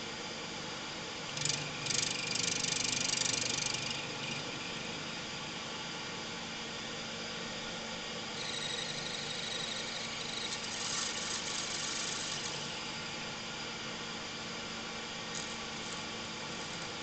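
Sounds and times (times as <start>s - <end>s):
metal lathe running: 8.4s - 13.2s.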